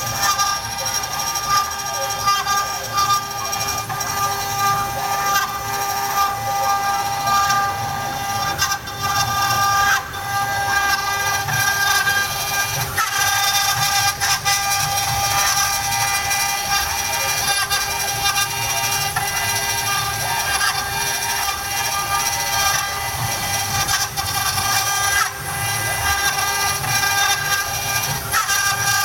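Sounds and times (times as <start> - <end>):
cutting noise: 0.0 - 29.0
router spindle high-pitched whine: 0.0 - 29.0.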